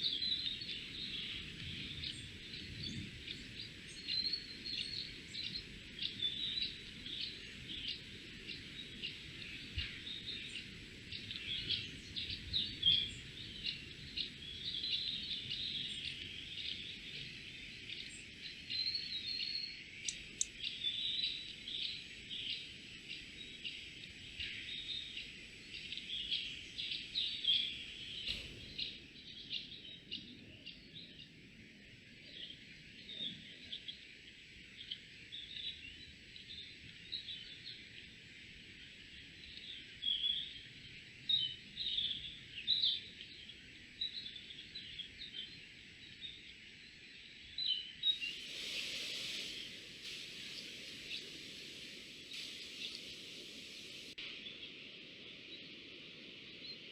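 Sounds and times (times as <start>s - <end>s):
small birds chirping: 0.0s - 56.9s
burst of hiss: 48.0s - 54.2s.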